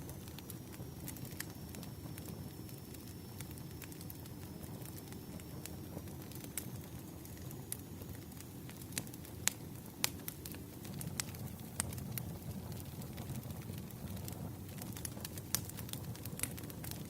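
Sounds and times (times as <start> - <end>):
burning logs rumbling: 0.0 - 17.0
wood fire popping and snapping: 0.0 - 17.0.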